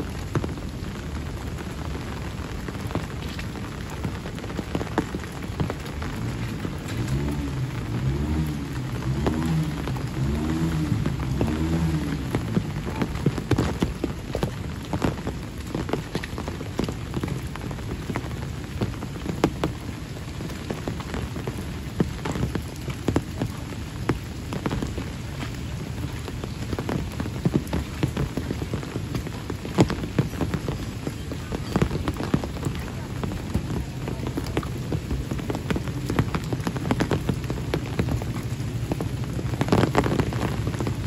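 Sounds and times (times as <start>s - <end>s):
sharp raindrop impacts: 0.0s - 41.0s
steady rain on wet road: 0.0s - 41.0s.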